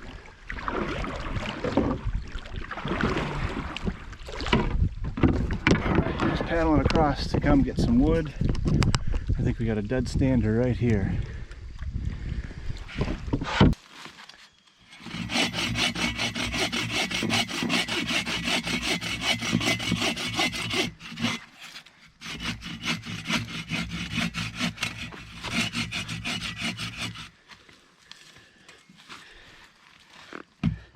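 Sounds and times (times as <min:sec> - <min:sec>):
hand saw cutting wood: 0:14.9 - 0:27.4.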